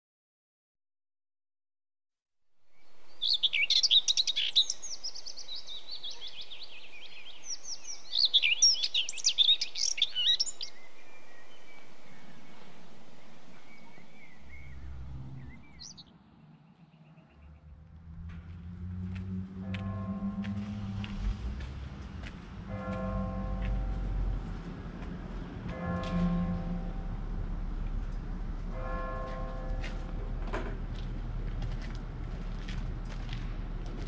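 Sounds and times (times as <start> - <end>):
bird chirps: 2.7 - 17.7
songbirds twittering: 2.7 - 17.8
low hum: 9.6 - 34.0.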